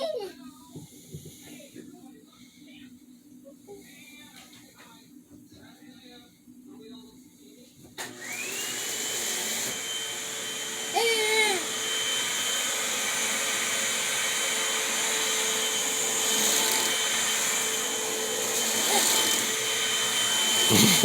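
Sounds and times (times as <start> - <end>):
vacuum cleaner motor whine: 8.0 - 21.0
short high voice-like cry: 10.9 - 11.6.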